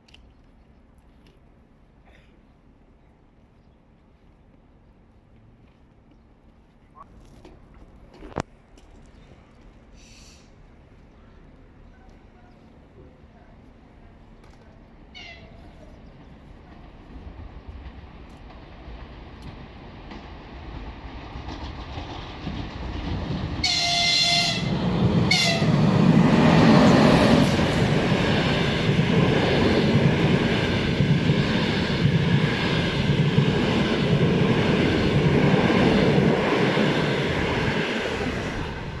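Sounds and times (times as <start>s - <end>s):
train wheels rumbling on rails: 14.4s - 39.0s
wheels clacking over rail joints: 16.2s - 24.2s
train horn blasts: 23.6s - 25.8s.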